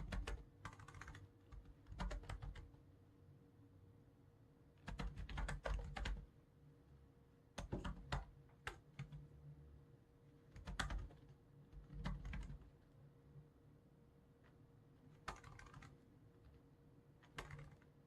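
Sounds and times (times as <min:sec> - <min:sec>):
typing on computer keyboard: 0:00.0 - 0:02.8, 0:04.8 - 0:06.3, 0:07.6 - 0:09.3, 0:10.5 - 0:12.7, 0:15.1 - 0:16.6, 0:17.2 - 0:18.0
faint hum: 0:00.0 - 0:18.0.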